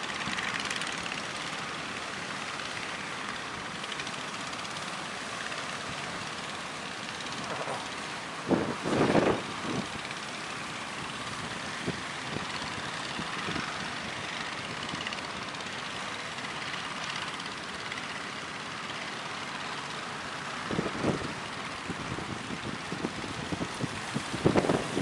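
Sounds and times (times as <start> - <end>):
wind buffeting microphone: 7.4 - 10.1, 20.7 - 25.0
strong wind roar: 8.4 - 10.0, 21.9 - 25.0.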